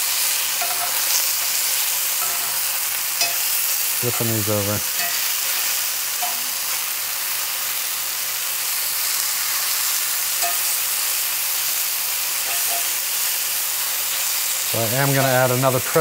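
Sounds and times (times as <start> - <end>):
mushrooms sizzling in skillet: 0.0 - 16.0
utensil clinking against pan: 3.2 - 4.4, 10.4 - 10.8, 12.5 - 13.0.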